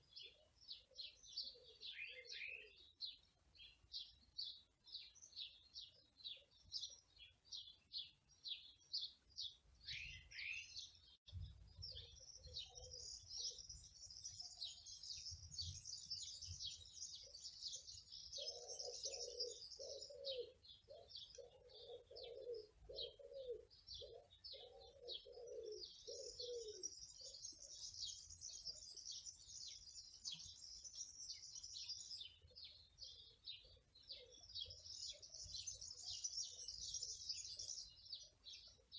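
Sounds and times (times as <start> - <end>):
small birds chirping: 0.0 - 38.9
dove cooing: 18.4 - 27.3.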